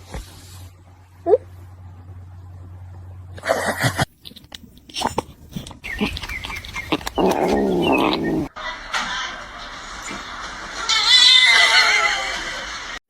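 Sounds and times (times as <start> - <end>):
cat clicks and chirps: 5.6 - 8.4.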